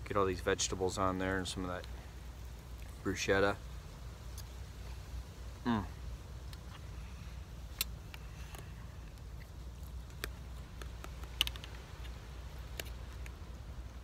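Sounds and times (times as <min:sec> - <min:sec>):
person chewing food: 0:07.7 - 0:13.4.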